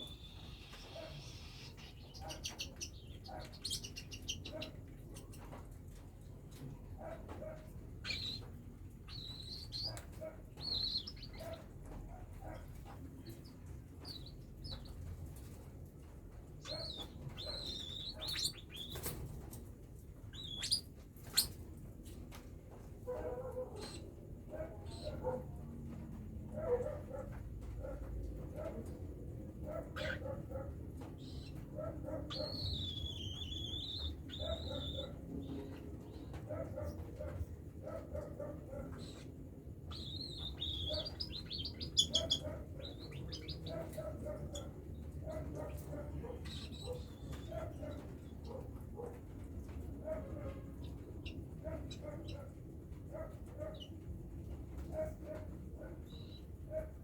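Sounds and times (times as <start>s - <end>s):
cockatiels chirping: 0.0s - 5.6s, 7.2s - 15.1s, 16.6s - 19.6s, 20.2s - 21.6s, 29.7s - 30.2s, 31.2s - 37.4s, 38.2s - 39.3s, 39.9s - 44.7s.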